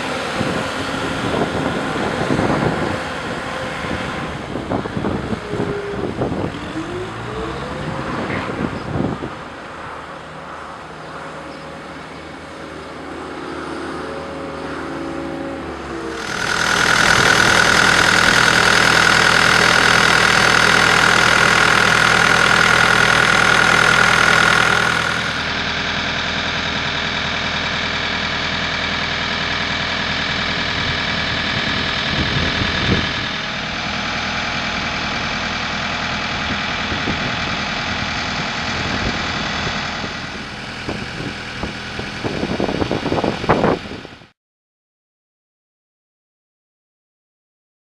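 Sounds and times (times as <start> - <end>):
high-pitched engine whine: 0.0 - 44.3
diesel loader engine running: 15.8 - 44.3.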